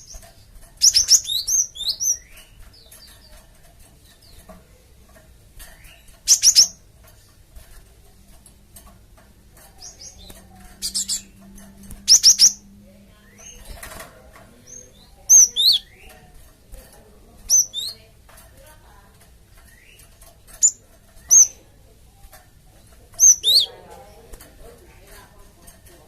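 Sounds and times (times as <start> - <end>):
bird chirping: 0.0 - 4.6, 5.6 - 7.3, 9.6 - 16.4, 17.4 - 18.1, 19.5 - 21.7, 22.8 - 23.9.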